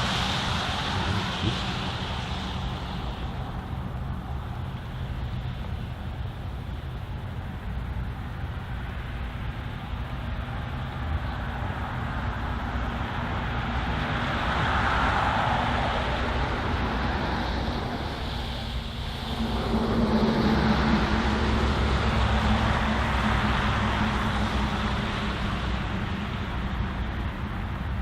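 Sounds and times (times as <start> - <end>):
low engine hum: 0.0 - 28.0
vehicle passing: 13.5 - 28.0.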